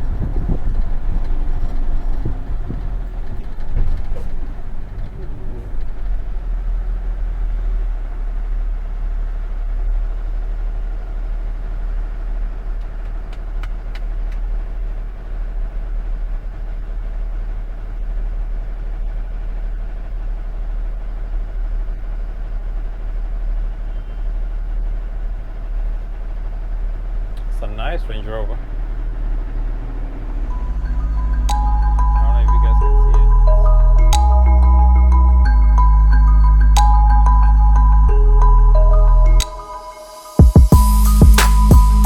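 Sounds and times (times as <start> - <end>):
truck engine and road drone: 0.0 - 42.0.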